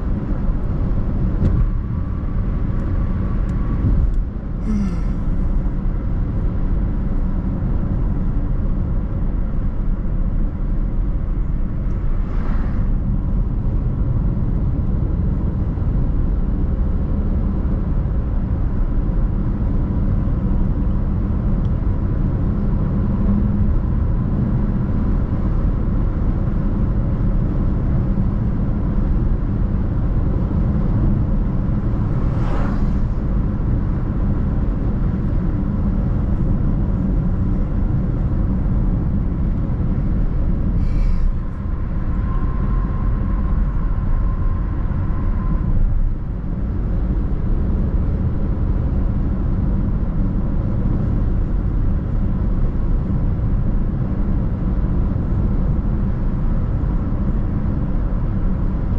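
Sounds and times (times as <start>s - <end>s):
car road and engine noise: 0.0s - 58.9s
brief whoosh: 12.1s - 13.0s, 31.8s - 33.7s, 40.7s - 44.6s.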